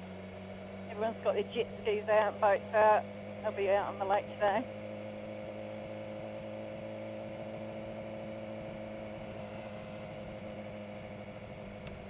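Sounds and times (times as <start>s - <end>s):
motorcycle engine humming: 0.0s - 12.0s.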